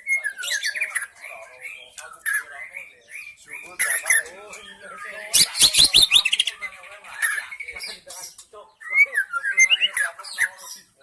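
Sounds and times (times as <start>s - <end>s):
bird singing whistled notes: 5.0s - 6.6s.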